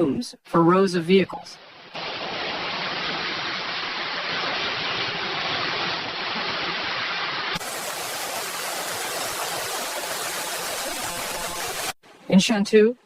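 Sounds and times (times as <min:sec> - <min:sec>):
floodwater rushing: 0:01.7 - 0:12.0.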